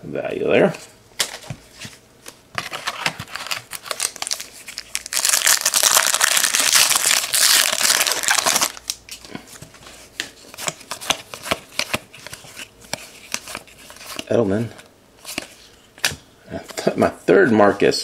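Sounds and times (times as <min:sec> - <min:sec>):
plastic wrapper crinkling and tearing: 0:02.7 - 0:09.0.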